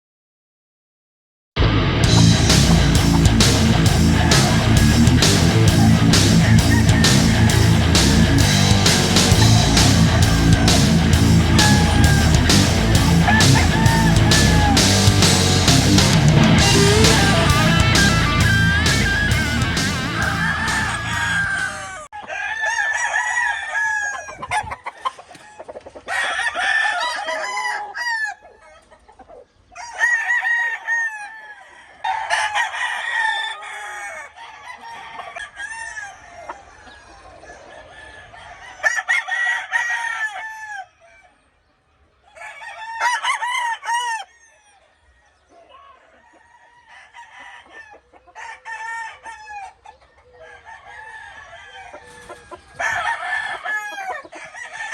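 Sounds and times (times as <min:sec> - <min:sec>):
music: 0:01.6 - 0:21.8
roosters crowing: 0:02.1 - 0:41.6, 0:42.2 - 0:54.9
chickens clucking: 0:02.2 - 0:54.9.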